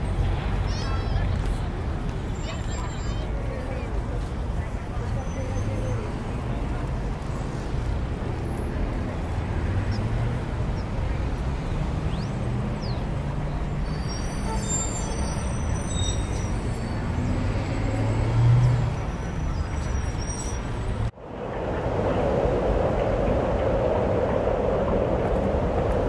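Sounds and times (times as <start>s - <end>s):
rumble of passing vehicles: 0.0s - 26.0s
faint high squeals: 13.8s - 20.9s.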